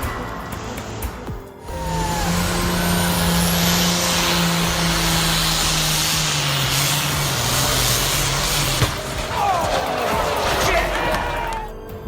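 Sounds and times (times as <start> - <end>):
tractor engine running under load: 1.7 - 9.3.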